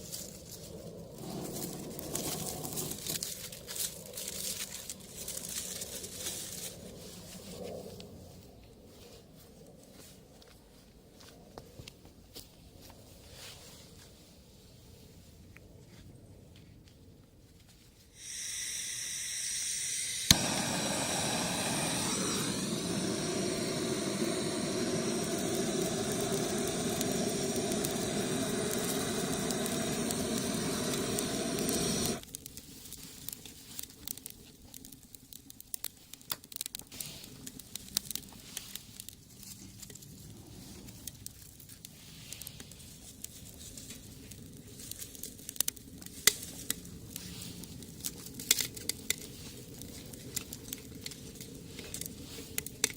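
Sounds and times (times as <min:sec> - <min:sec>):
stove fire rushing hiss: 0:18.1 - 0:52.9
wood fire crackling and popping: 0:18.2 - 0:52.9.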